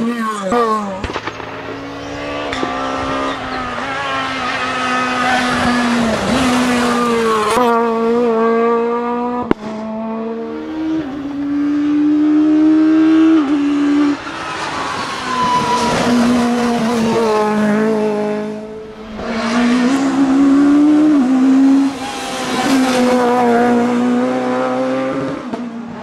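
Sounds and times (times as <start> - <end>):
rally car engine revving: 0.0 - 26.0
sharp crack: 1.0 - 1.9.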